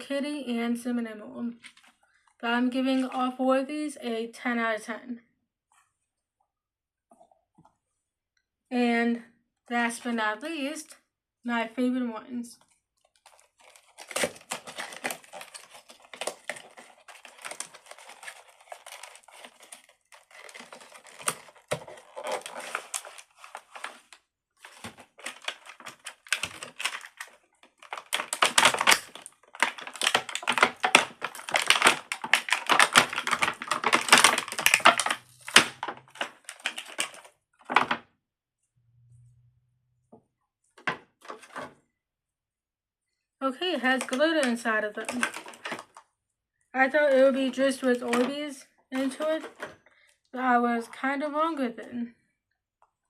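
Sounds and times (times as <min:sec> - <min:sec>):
plastic packaging crinkling: 0:12.6 - 0:38.0, 0:43.8 - 0:46.0, 0:46.8 - 0:48.4, 0:49.0 - 0:49.8.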